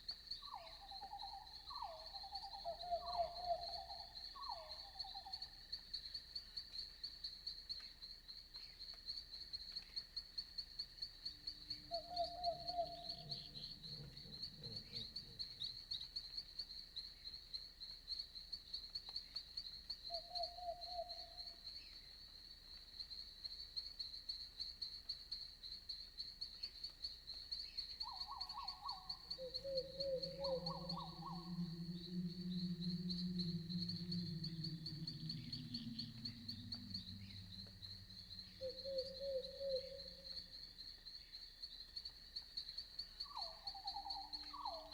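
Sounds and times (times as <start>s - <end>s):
crickets trilling: 0.0s - 44.9s
low animal calls: 11.8s - 15.7s, 28.2s - 40.5s.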